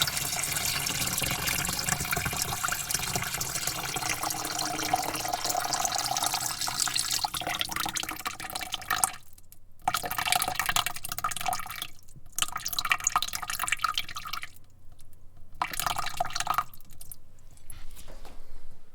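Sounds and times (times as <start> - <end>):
water spraying into bucket: 0.0 - 8.2.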